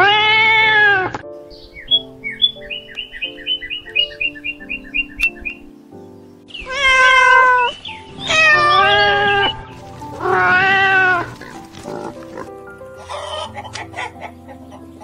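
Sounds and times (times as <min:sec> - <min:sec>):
cat meowing: 0:00.0 - 0:01.2, 0:06.6 - 0:09.6, 0:10.2 - 0:11.4
background music: 0:00.0 - 0:15.0.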